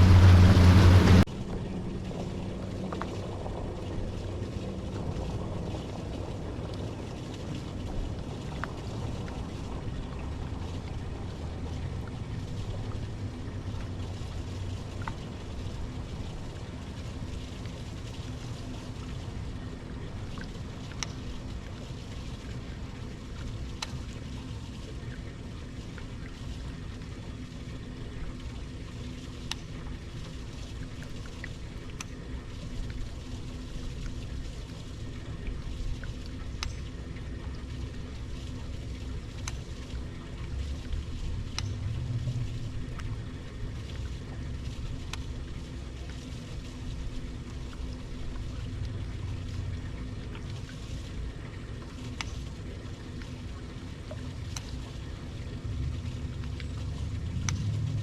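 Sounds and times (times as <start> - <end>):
boat engine rumble: 0.0 - 58.0
water sounds: 0.0 - 58.0
faint clicks: 20.4 - 21.2, 29.4 - 29.7, 36.5 - 36.9, 39.4 - 39.7, 41.5 - 41.8, 52.1 - 52.4, 57.4 - 57.8.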